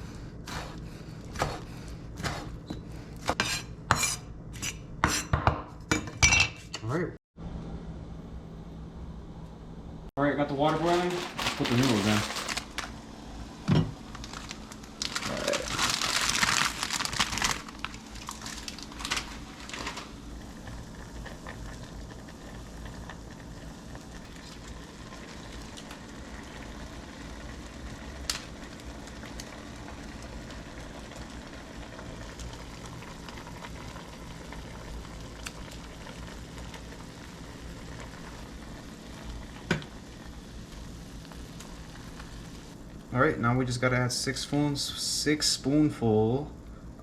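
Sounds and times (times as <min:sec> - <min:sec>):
water boiling in a pot: 0:10.9 - 0:43.1.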